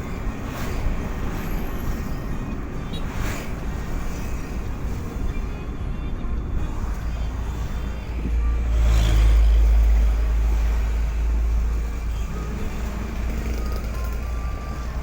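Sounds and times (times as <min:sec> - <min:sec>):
road noise: 0:00.0 - 0:15.0
road vehicle rumble: 0:00.0 - 0:15.0.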